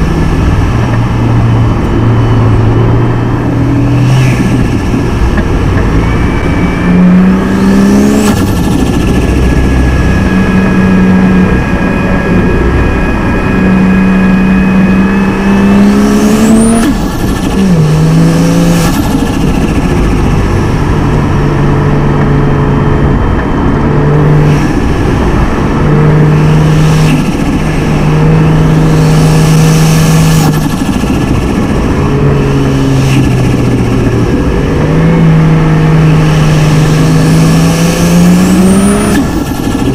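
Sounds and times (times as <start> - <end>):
car engine accelerating: 0.0 - 39.9
faint high rising whine: 5.9 - 16.8.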